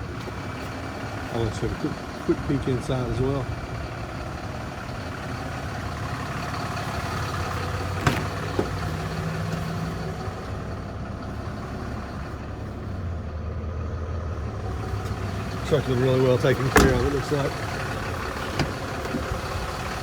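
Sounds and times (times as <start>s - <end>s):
pickup engine idling: 0.0s - 20.0s.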